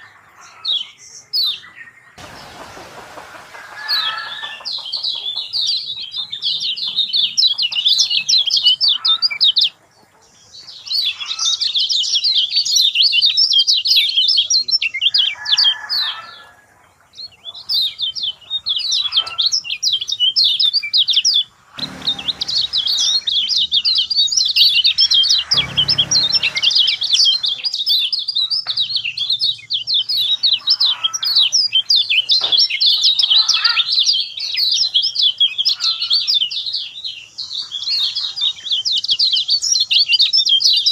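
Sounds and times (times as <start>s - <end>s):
bird singing high chirps: 3.7s - 9.8s, 10.5s - 16.4s, 17.1s - 40.9s.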